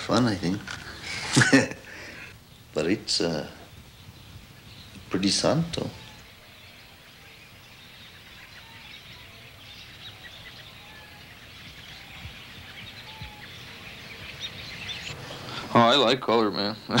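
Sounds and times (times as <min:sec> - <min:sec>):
background hiss: 0:00.0 - 0:17.0
faint bird chirps: 0:00.8 - 0:17.0.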